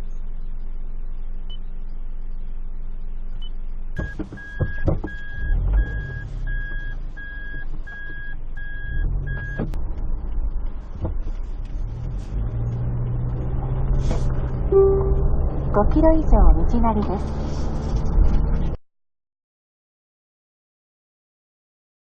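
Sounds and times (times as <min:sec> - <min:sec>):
car engine running: 0:00.0 - 0:18.8
car warning beeps: 0:03.4 - 0:09.8, 0:14.7 - 0:16.9.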